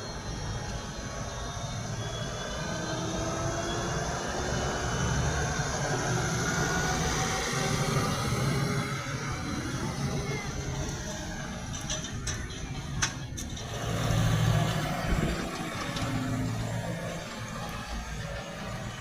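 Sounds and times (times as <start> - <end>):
faint sliding whines: 0.0 - 19.0
tractor engine under load: 0.0 - 19.0.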